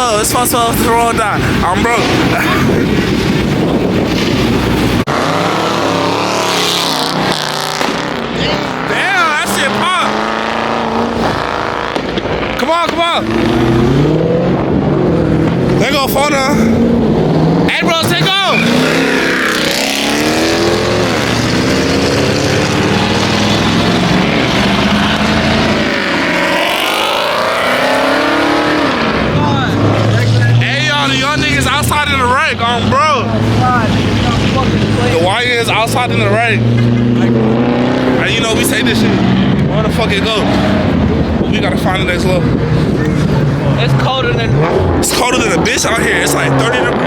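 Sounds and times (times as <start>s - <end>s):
car engine at high revs: 0.0s - 47.0s
engine revving: 0.0s - 47.0s.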